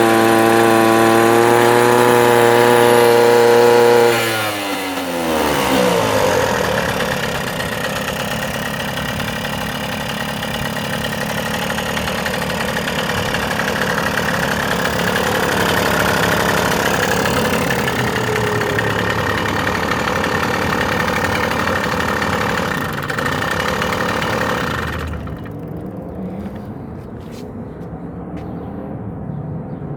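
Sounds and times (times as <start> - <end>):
moped engine running: 0.0 - 27.4.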